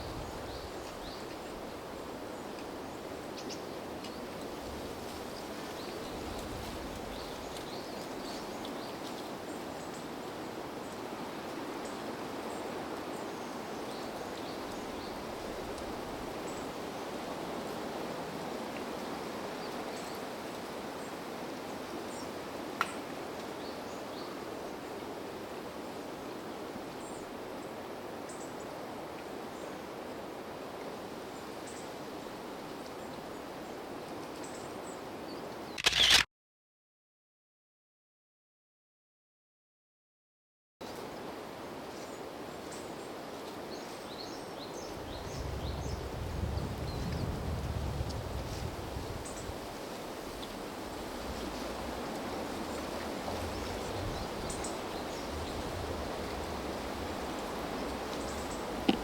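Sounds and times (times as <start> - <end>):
wind rumble on microphone: 0.0 - 1.9, 44.6 - 59.0
wind in trees: 0.0 - 36.2, 40.8 - 59.0
sharp click: 35.8 - 36.3.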